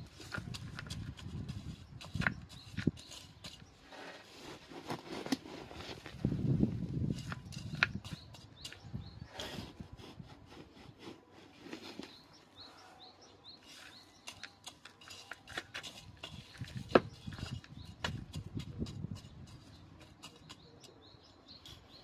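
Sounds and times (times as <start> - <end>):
rustling and scraping: 0.0 - 22.0
small bird chirping: 0.2 - 3.9, 6.3 - 9.8, 11.8 - 22.0.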